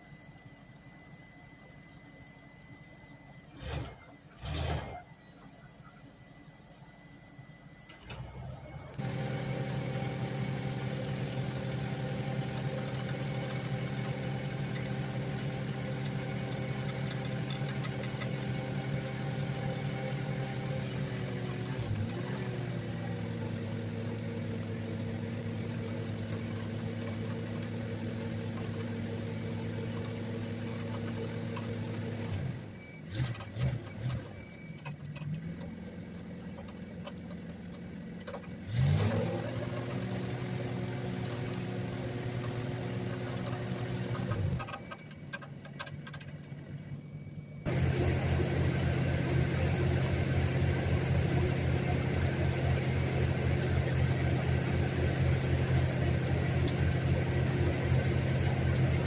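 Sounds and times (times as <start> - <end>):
engine running: 7.9 - 59.0
deep loud engine: 8.0 - 44.9, 46.3 - 59.0.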